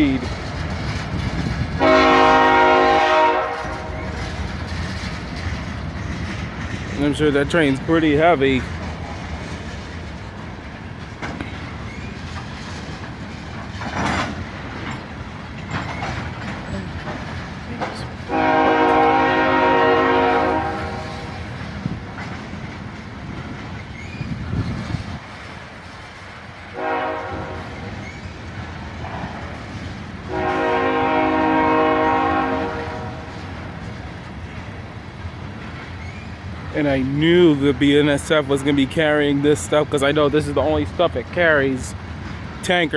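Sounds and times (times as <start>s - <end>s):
freight train rumbling past: 0.0s - 42.9s
train wheel clatter: 0.0s - 42.9s
locomotive horn blasts: 1.8s - 4.3s, 18.3s - 21.5s, 26.7s - 27.9s, 30.3s - 33.5s.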